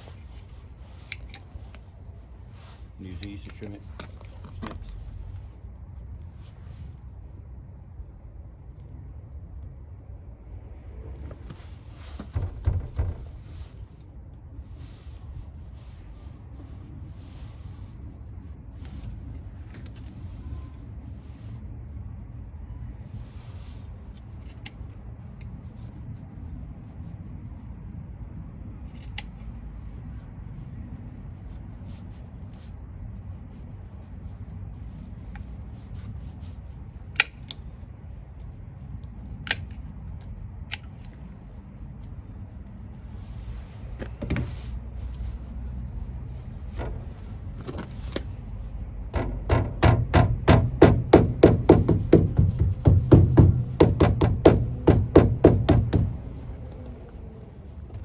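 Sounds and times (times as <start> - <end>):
steady low rumble: 0.0 - 19.7, 32.3 - 58.0
knocks and clicks on door trim: 12.2 - 13.4, 49.2 - 56.8.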